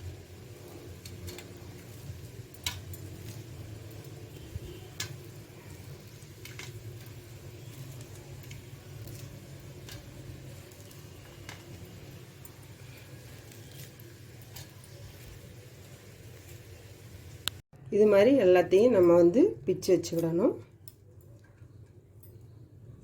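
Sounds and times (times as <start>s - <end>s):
fried food crumbling and squishing: 4.7s - 15.8s.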